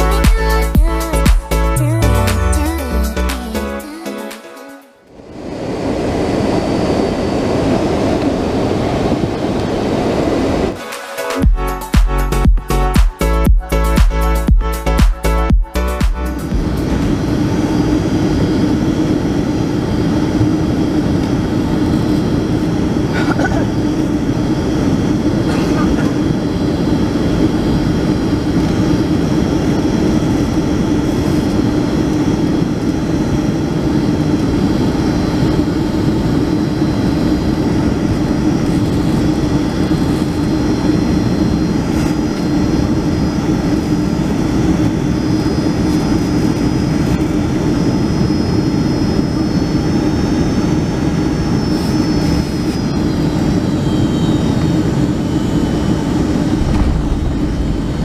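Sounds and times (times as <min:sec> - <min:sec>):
jet engine and airflow rumble: 0:00.0 - 0:58.0
high engine whines: 0:05.0 - 0:58.0.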